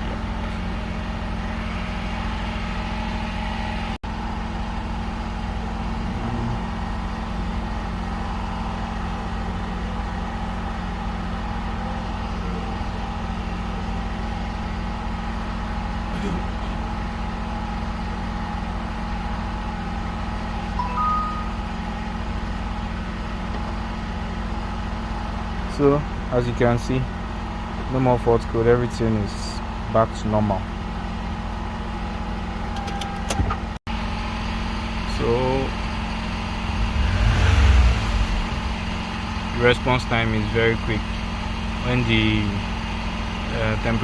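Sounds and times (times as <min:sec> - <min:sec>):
car engine idling: 0:00.0 - 0:44.0
short beeps: 0:20.8 - 0:21.8.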